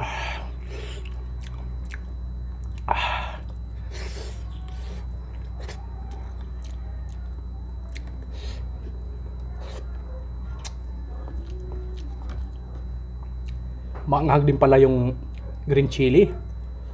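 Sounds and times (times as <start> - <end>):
steady low hum: 0.0 - 16.9
wet chewing: 0.6 - 13.7, 15.3 - 15.6
lip smacks: 0.9 - 3.6, 4.7 - 8.3, 10.6 - 12.6.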